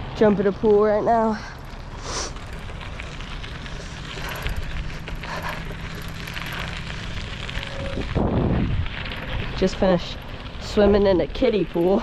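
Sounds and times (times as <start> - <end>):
wind noise on microphone: 4.2 - 11.4.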